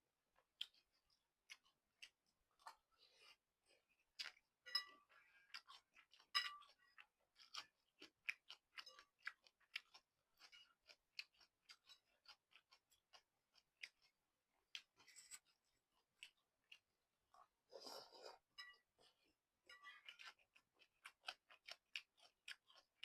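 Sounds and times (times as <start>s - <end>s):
person chewing noodles: 0.4s - 23.0s.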